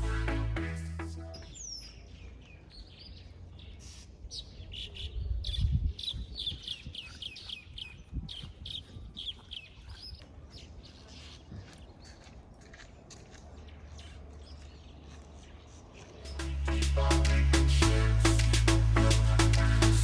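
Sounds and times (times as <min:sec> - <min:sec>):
birds chirping: 0:00.0 - 0:17.8
low rumble: 0:16.3 - 0:20.0.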